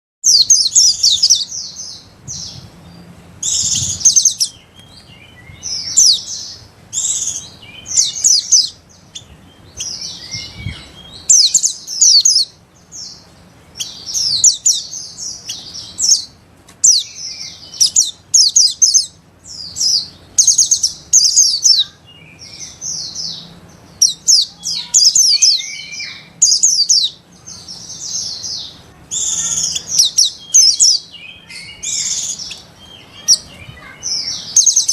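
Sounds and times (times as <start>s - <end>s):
birds chattering twitter: 0.2s - 34.9s.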